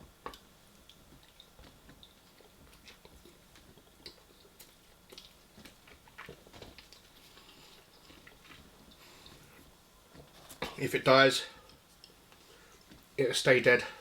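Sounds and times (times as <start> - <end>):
person chewing: 0.2 - 9.6.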